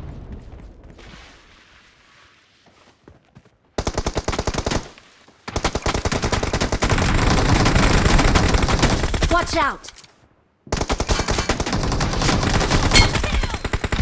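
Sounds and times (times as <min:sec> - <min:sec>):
video game automatic gunfire: 0:05.5 - 0:09.3, 0:10.7 - 0:14.0.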